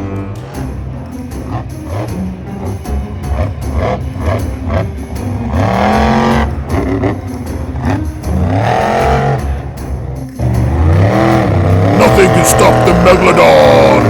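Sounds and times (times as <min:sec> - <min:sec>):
monster truck engine revving: 0:00.0 - 0:14.0
music with steady beat: 0:00.0 - 0:14.0.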